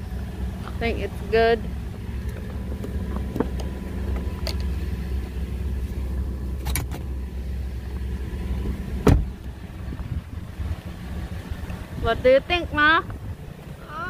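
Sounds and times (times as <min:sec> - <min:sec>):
car engine idling: 0:00.0 - 0:14.0
loud thump: 0:09.0 - 0:09.4.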